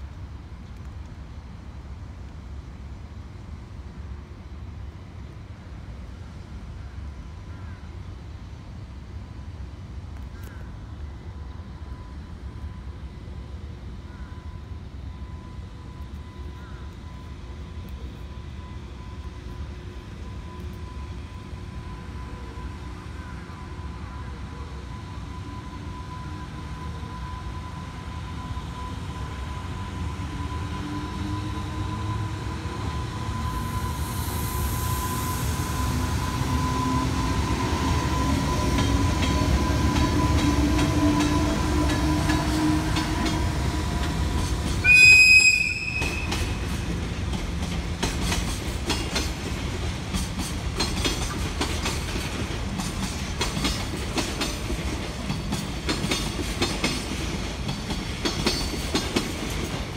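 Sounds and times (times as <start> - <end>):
electric locomotive rumbling: 0.0 - 59.9
locomotive horn blast: 44.8 - 46.7
wheels clicking over rail joints: 45.8 - 59.9.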